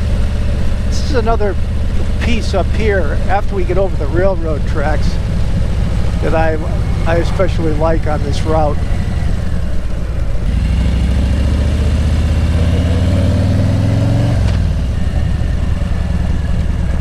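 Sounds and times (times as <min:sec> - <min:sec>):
steady low rumble: 0:00.0 - 0:13.0, 0:13.6 - 0:17.0
vehicle engine accelerating: 0:00.0 - 0:17.0.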